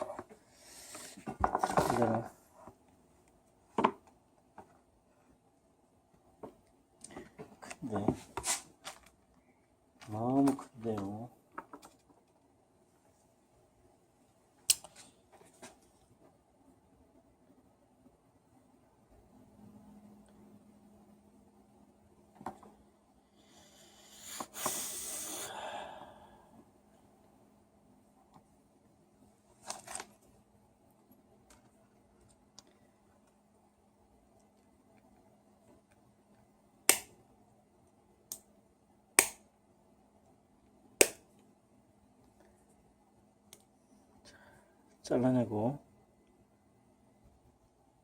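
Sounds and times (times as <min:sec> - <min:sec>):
faint steady hum: 0:00.0 - 0:48.0
hand tool snapping wire: 0:36.9 - 0:37.1.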